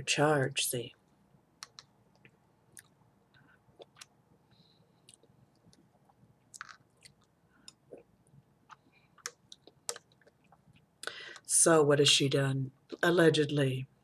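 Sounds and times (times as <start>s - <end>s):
person chewing food: 3.6s - 4.2s, 4.9s - 11.5s
wet mouth clicks and smacks: 3.8s - 4.2s.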